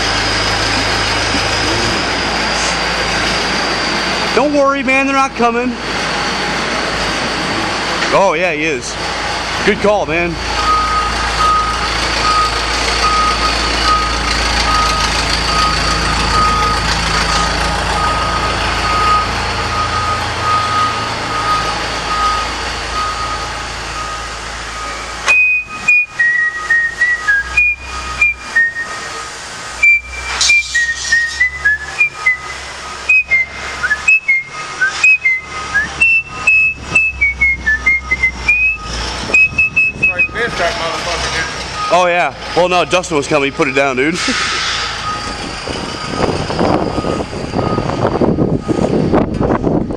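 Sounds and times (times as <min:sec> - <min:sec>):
vehicle reversing alarm beeping: 0:00.0 - 0:05.6, 0:09.6 - 0:49.9
low engine rumble: 0:00.0 - 0:49.9
person whistling a tune: 0:25.3 - 0:29.1, 0:29.8 - 0:40.3.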